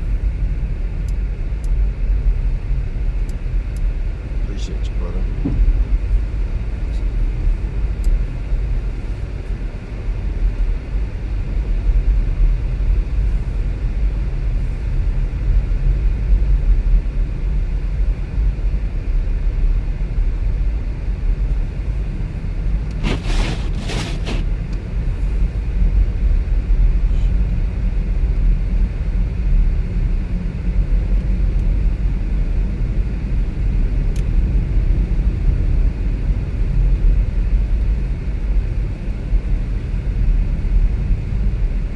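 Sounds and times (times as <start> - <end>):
car engine rumble: 0.0 - 41.9
road noise: 21.5 - 29.3.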